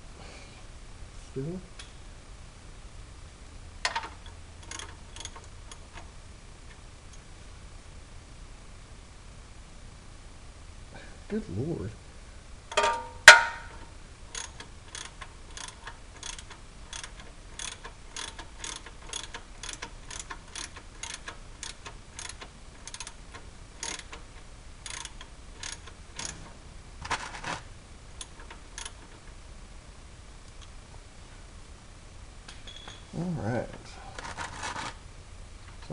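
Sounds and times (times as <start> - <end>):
rattle: 3.8 - 6.1, 12.7 - 29.4, 34.1 - 35.0
hand ratchet clicking: 3.9 - 6.0, 14.3 - 26.4, 28.2 - 29.1.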